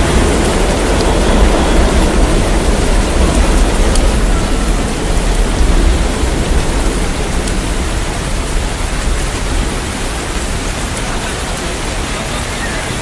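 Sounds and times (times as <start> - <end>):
deep low rumble: 0.0 - 10.8
heavy rain falling: 0.0 - 13.0.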